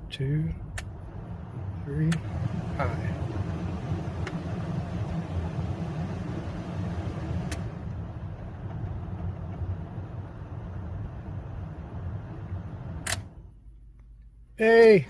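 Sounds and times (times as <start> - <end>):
heater blower fan running: 0.0 - 13.8
sharp click: 13.0 - 13.3.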